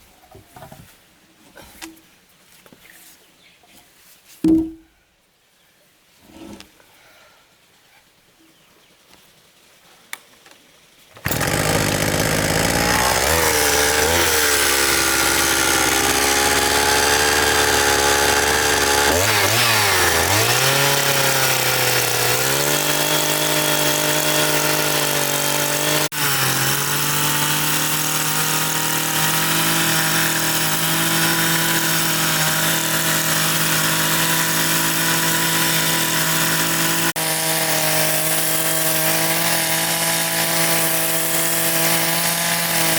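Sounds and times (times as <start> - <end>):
power tool motor running: 11.2 - 42.9.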